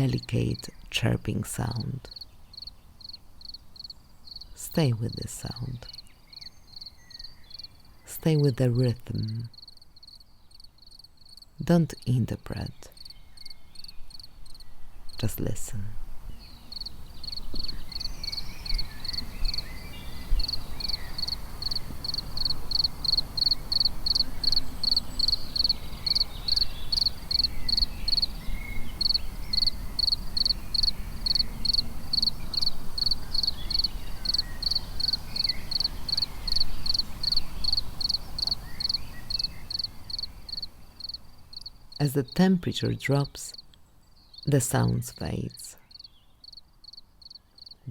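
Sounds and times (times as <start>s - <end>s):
cricket chirping: 2.1s - 4.5s, 5.8s - 8.0s, 9.2s - 11.6s, 13.0s - 15.2s, 16.7s - 19.8s, 20.4s - 42.0s, 45.9s - 47.9s.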